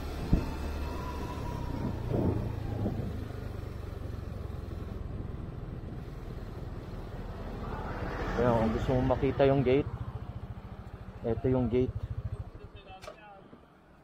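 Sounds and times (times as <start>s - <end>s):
vehicle rumbling: 0.0s - 14.0s.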